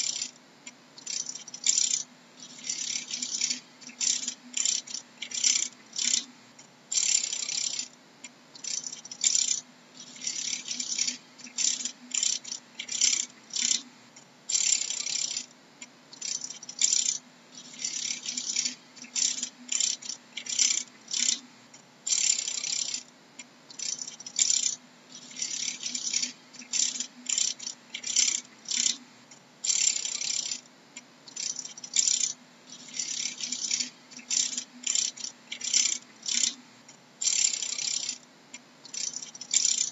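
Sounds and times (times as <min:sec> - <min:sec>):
faint low hum: 0:00.0 - 0:39.9
dragonfly rasping rattles: 0:01.0 - 0:06.3, 0:16.2 - 0:21.4, 0:23.8 - 0:29.0, 0:31.3 - 0:36.6, 0:37.2 - 0:38.2, 0:38.9 - 0:39.9.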